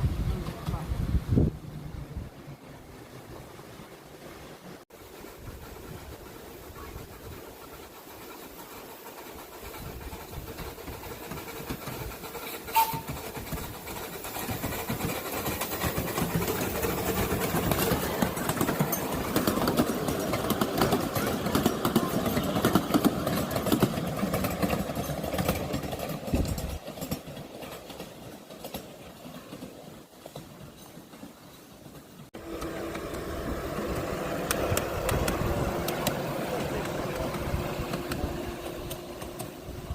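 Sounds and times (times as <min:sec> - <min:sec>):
miniature train passing: 0:00.0 - 0:39.9.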